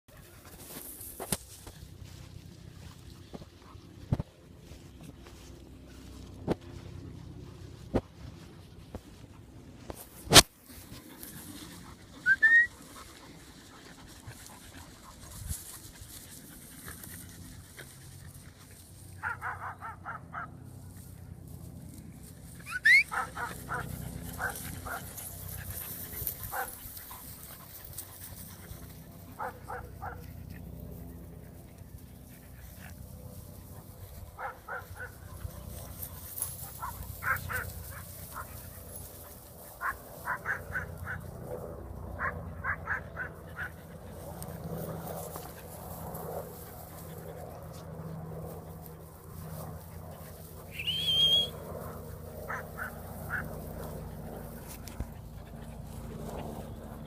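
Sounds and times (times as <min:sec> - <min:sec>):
loud rising whistle: 0:12.3 - 0:12.7, 0:50.7 - 0:51.6
dog yapping: 0:22.7 - 0:23.8.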